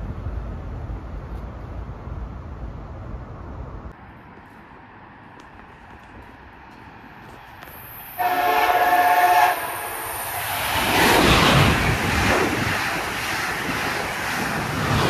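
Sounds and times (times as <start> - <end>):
train rushing past: 6.6 - 15.0
train horn blast: 8.2 - 10.3.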